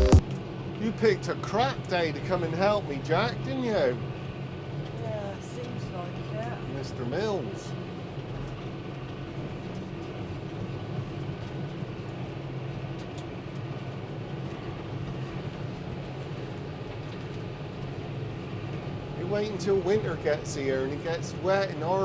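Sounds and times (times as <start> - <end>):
vehicle engine running: 0.0 - 0.4.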